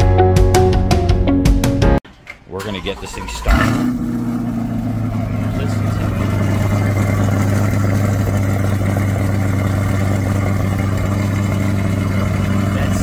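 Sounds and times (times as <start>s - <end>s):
car engine idling: 2.6s - 13.0s.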